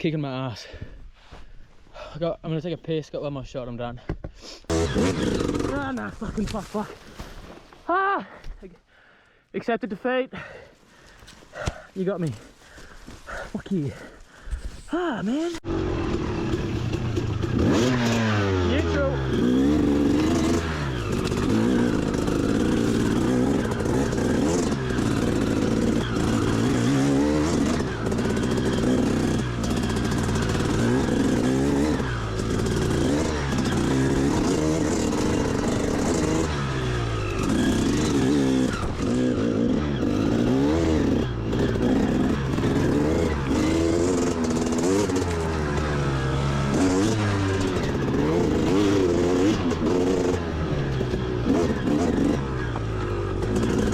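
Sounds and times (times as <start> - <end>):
dirt bike engine revving: 4.7 - 6.2, 15.6 - 53.9.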